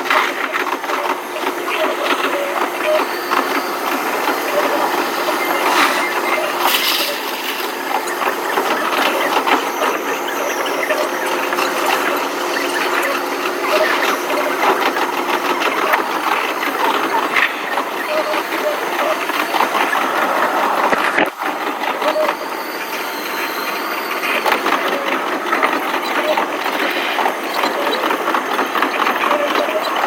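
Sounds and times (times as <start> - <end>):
wheels clicking and rattling: 5.2 - 10.0.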